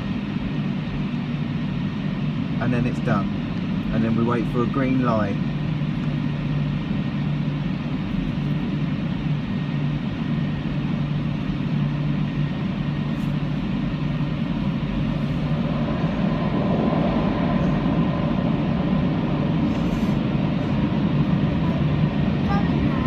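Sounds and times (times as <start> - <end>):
car wash air dryer blowing: 12.9 - 23.0.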